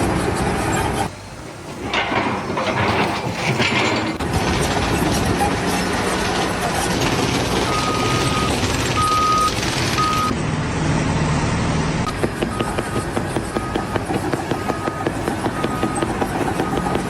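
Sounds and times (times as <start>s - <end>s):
heavy machinery running loudly: 0.9s - 17.0s
reversing alarm beeping: 7.6s - 10.3s, 12.1s - 17.0s.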